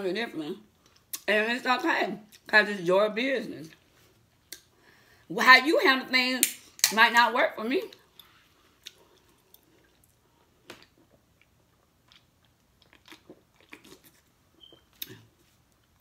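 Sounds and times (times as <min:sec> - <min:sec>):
person chewing food: 0:07.9 - 0:16.0.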